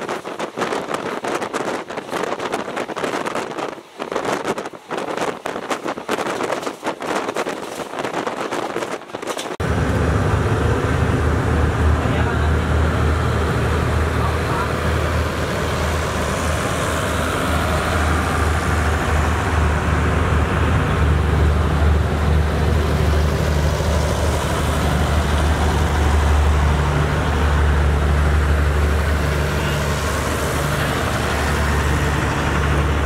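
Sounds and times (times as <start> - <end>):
passenger train rumbling past: 8.7 - 33.0.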